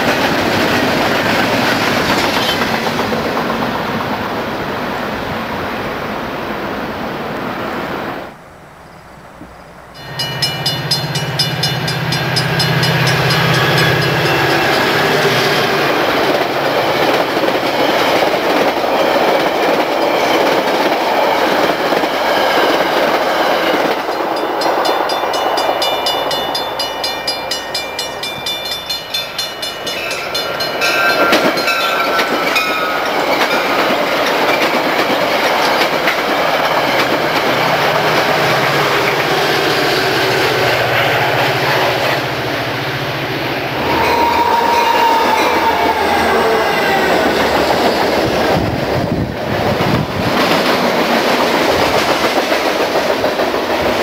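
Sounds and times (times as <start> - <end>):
wheels clacking over rail joints: 0.0 - 4.5, 10.0 - 42.3
train rumbling past: 0.0 - 54.0
short held tone: 24.4 - 33.1.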